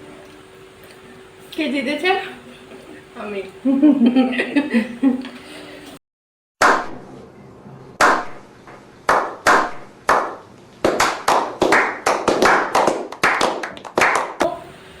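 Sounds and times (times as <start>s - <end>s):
hands clapping: 9.1s - 14.6s.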